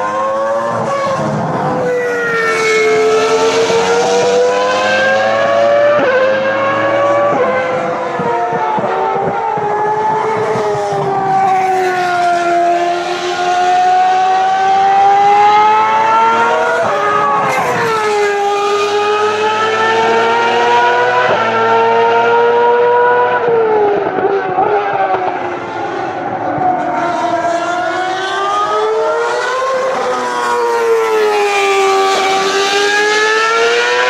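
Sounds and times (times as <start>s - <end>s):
racing car engines revving: 0.0s - 34.0s.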